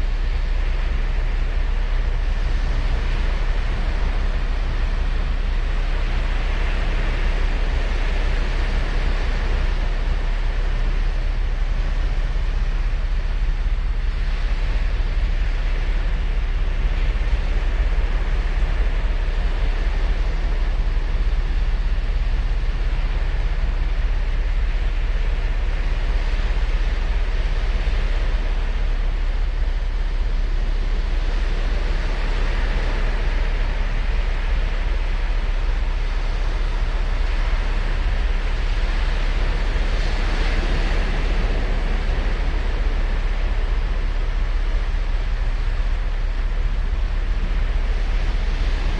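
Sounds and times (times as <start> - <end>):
ocean surf breaking on beach: 24.3 - 48.9.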